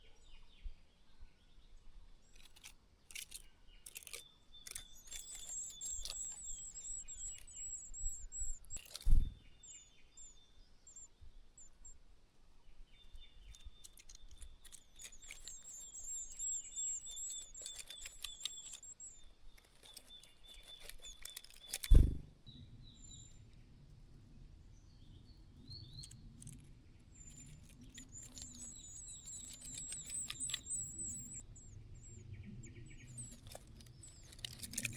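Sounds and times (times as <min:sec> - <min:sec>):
high thin wavering bird calls: 0:03.8 - 0:12.0, 0:13.4 - 0:22.3, 0:27.1 - 0:34.9
short dull thumps: 0:21.8 - 0:22.4.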